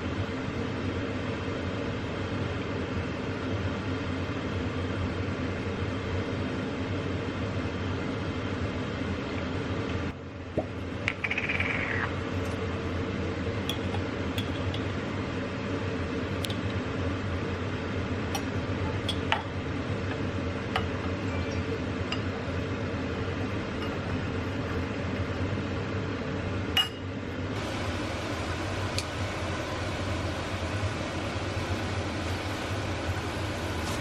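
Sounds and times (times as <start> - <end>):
steady low hum: 0.0 - 34.0
glass and dishware clinking: 26.8 - 27.1.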